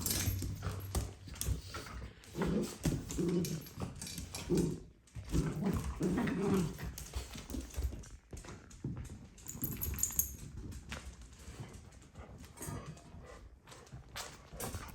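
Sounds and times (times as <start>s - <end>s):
dog growly grumbles: 2.2s - 7.0s.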